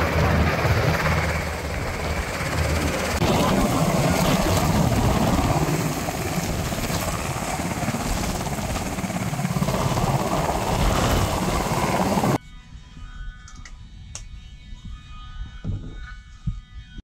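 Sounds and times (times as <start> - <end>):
helicopter rotor and engine: 0.0 - 12.4.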